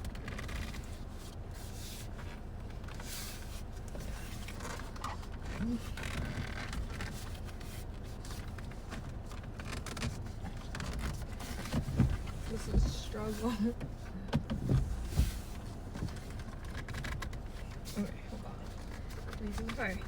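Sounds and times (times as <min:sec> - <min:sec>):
rustling and scraping of wheel cover: 0:00.0 - 0:20.0.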